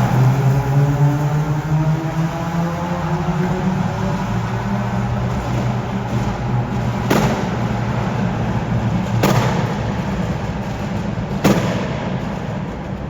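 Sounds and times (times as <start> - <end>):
car engine drone: 0.0 - 13.0
exhaust bangs: 0.0 - 13.0.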